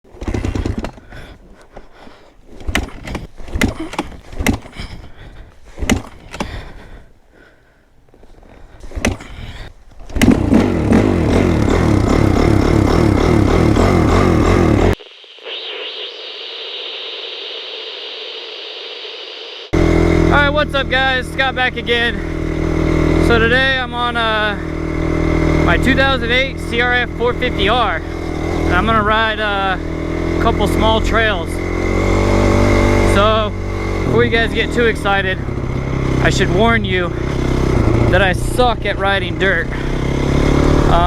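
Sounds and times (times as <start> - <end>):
engine running loudly: 10.2 - 15.0, 19.8 - 41.0.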